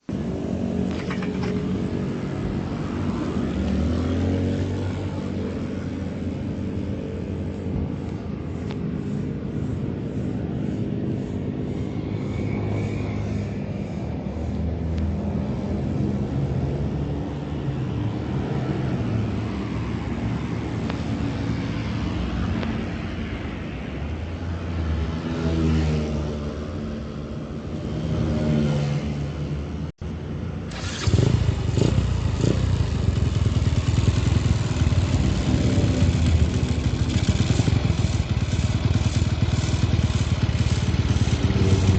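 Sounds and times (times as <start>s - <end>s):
motorcycle engine idling and revving: 0.0s - 41.9s.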